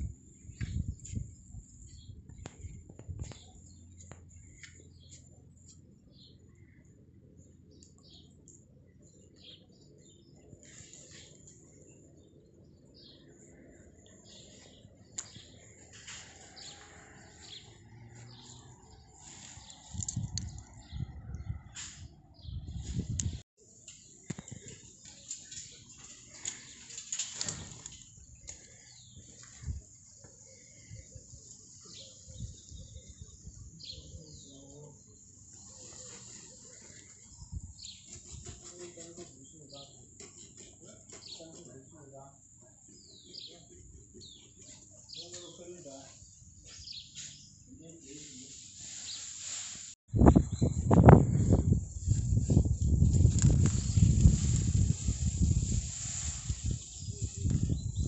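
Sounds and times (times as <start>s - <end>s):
faint outdoor background: 0.0s - 58.0s
birds chirping: 0.3s - 21.7s, 22.3s - 49.3s.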